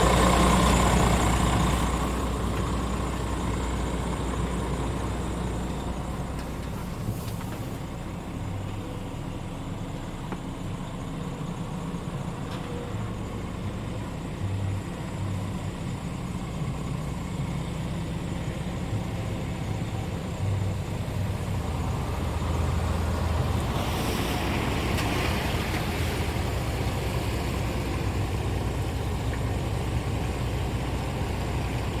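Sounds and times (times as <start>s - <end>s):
diesel engine running: 0.0s - 32.0s
hiss: 23.6s - 26.3s.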